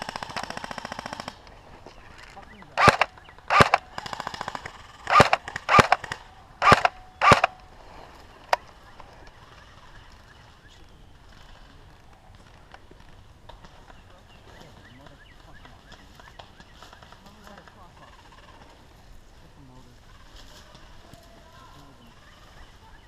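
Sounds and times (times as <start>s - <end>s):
airsoft gun full-auto bursts: 0.0s - 1.5s, 2.7s - 7.6s
gun click: 2.8s - 3.9s, 4.6s - 7.7s
airsoft gun single shots: 2.8s - 7.6s.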